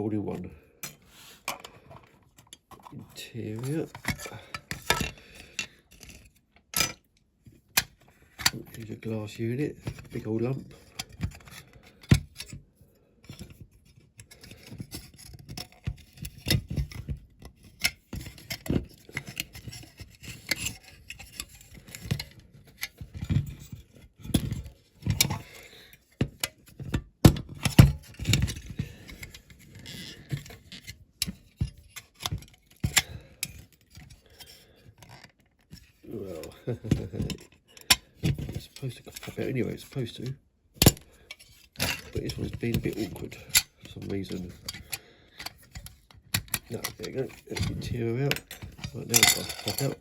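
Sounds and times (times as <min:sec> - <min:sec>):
small metal and plastic parts clicking: 0:35.0 - 0:50.0.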